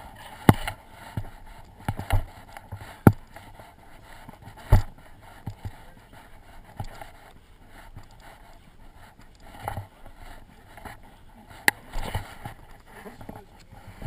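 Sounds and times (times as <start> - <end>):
sharp knocks: 4.6 - 4.9.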